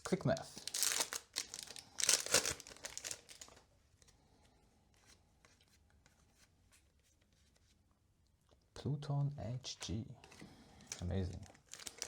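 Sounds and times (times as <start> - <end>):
foil wrapper tearing and crinkling: 0.0 - 3.6, 11.6 - 12.0.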